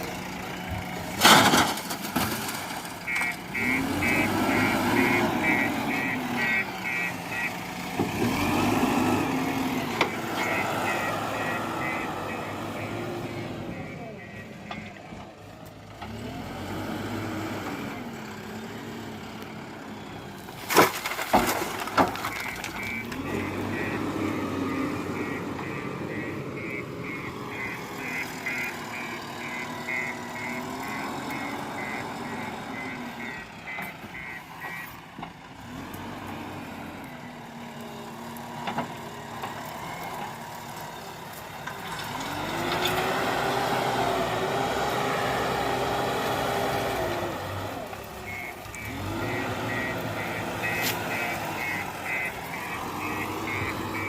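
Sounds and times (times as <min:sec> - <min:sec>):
diesel engine revving: 0:00.0 - 0:54.0
loud clanks and crashes: 0:01.1 - 0:03.0
reversing alarm beeping: 0:03.1 - 0:07.5, 0:10.1 - 0:15.0, 0:22.3 - 0:34.9, 0:48.2 - 0:54.0.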